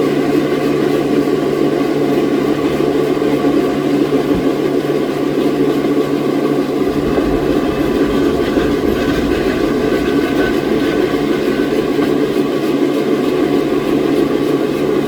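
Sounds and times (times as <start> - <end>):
sawmill machinery rumbling: 6.1 - 15.0
faint high whine: 6.7 - 12.7.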